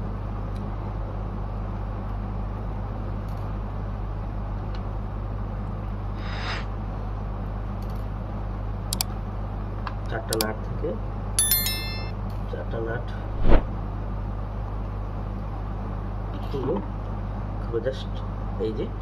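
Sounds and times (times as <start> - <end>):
brief scrape: 6.2 - 6.7.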